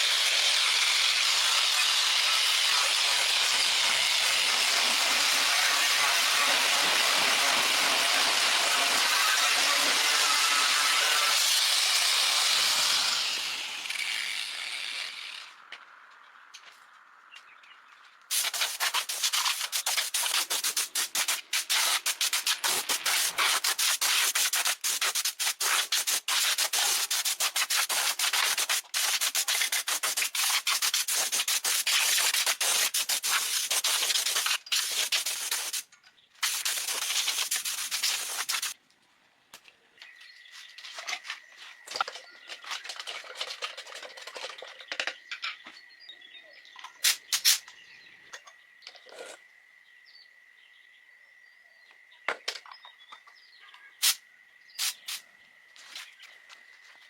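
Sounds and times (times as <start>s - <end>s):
sanding metal scraping: 18.3s - 35.8s.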